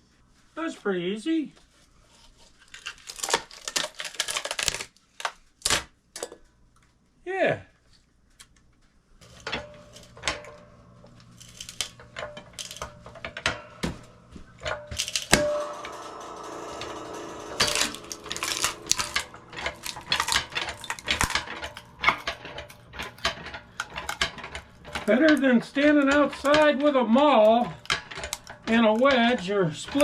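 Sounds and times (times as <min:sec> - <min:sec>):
log splitter clicks and knocks: 0:09.4 - 0:30.0.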